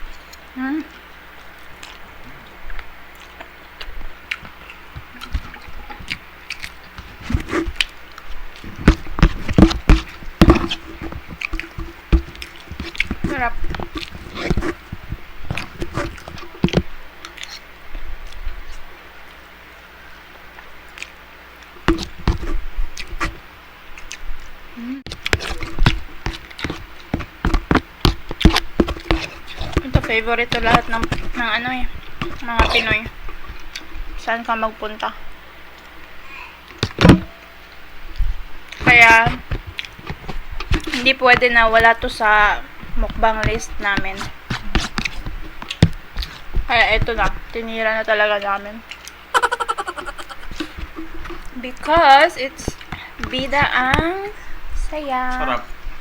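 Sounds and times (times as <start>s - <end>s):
wet chewing: 0.0s - 19.4s, 20.6s - 37.2s, 38.1s - 47.6s, 48.4s - 54.3s
slurping: 3.2s - 17.6s, 25.0s - 34.2s, 48.9s - 51.6s
lip smacks: 48.9s - 51.6s.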